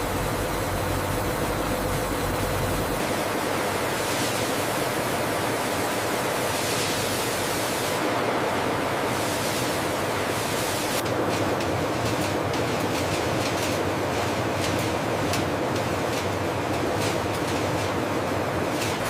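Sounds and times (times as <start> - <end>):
steady rushing noise: 0.0 - 15.2.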